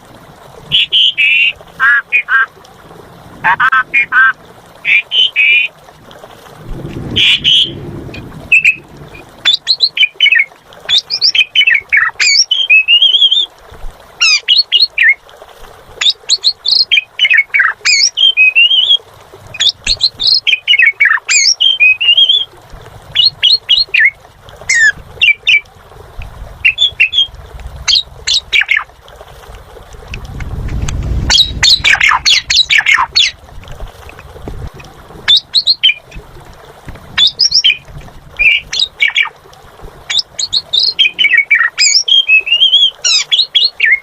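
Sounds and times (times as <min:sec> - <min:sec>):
starling singing: 0:19.6 - 0:22.5, 0:26.6 - 0:27.3, 0:27.9 - 0:28.9, 0:31.3 - 0:33.4, 0:38.4 - 0:39.3, 0:40.1 - 0:44.0.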